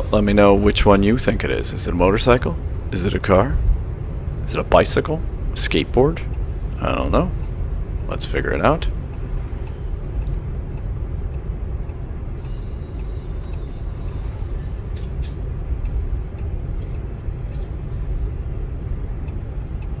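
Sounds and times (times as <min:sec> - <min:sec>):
car road and tyre rumble: 0:00.0 - 0:10.4.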